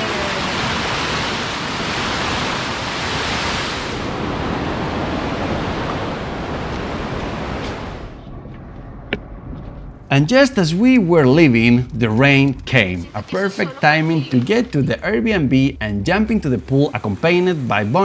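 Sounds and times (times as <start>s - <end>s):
fast-flowing water rushing: 0.0s - 7.5s.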